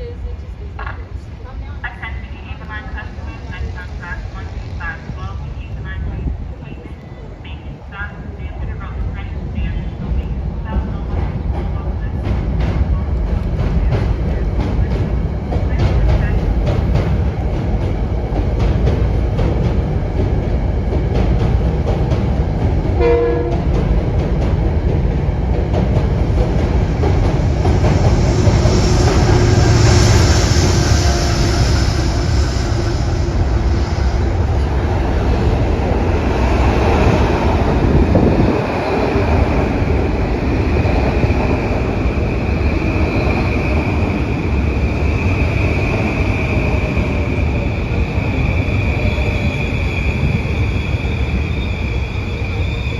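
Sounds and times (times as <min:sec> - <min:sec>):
train rail rumble: 0:00.0 - 0:52.9
train horn: 0:23.0 - 0:23.7, 0:29.1 - 0:33.5.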